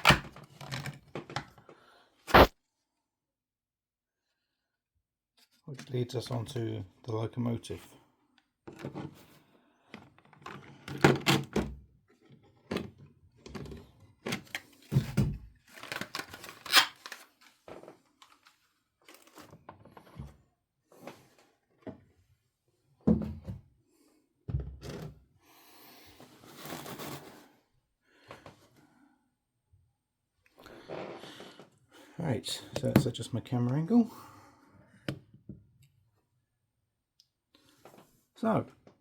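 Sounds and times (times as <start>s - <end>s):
packaging rustling: 15.6s - 17.6s.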